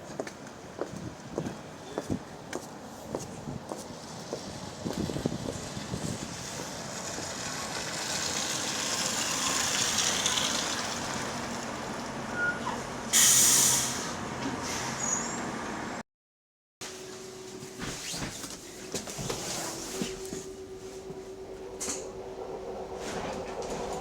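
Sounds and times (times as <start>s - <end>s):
bus hiss and low hum: 0.4s - 16.0s, 18.5s - 24.0s
loud compressed air hiss: 13.1s - 14.2s.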